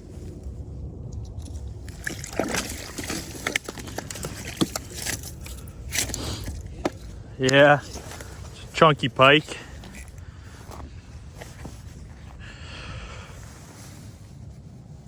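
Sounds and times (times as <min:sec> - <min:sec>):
water splashing and sloshing: 0:01.1 - 0:12.0
knocks and scrapes: 0:01.4 - 0:12.2.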